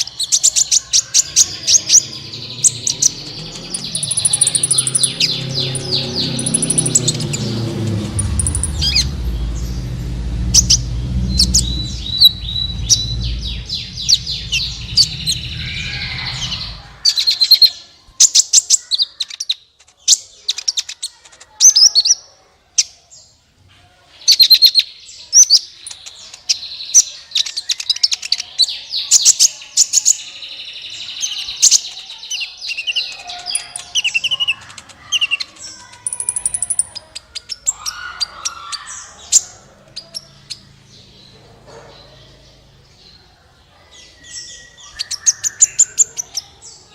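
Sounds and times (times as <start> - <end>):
sunbird chirping and trilling: 0.0 - 22.2, 24.2 - 46.9
low rumble: 1.6 - 17.3.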